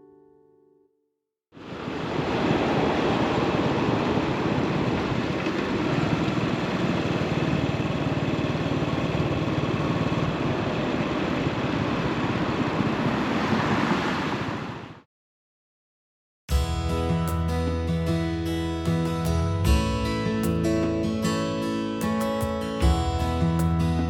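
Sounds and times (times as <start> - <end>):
wind rush on microphone: 1.7 - 6.8
motorcycle engine running: 5.6 - 10.9.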